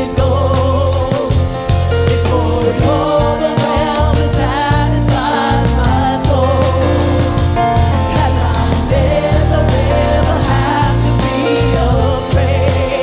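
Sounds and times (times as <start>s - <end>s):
gospel band playing: 0.0s - 13.0s
person singing ad-libs: 8.0s - 13.0s.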